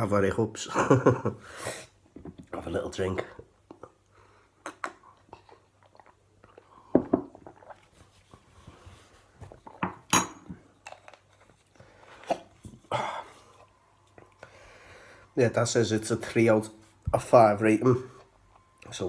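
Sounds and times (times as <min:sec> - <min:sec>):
tableware clinking: 0:09.8 - 0:11.1.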